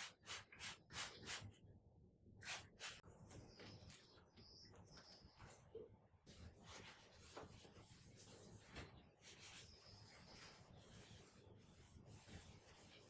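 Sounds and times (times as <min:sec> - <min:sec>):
faint rubbing and handling: 0:06.3 - 0:13.0.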